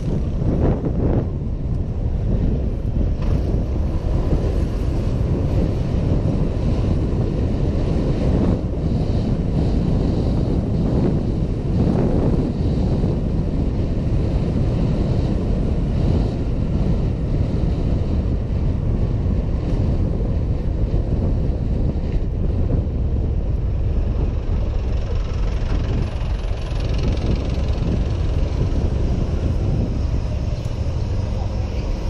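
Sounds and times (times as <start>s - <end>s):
road and vehicle noise: 0.0s - 32.0s
wind rumble on microphone: 0.0s - 32.0s.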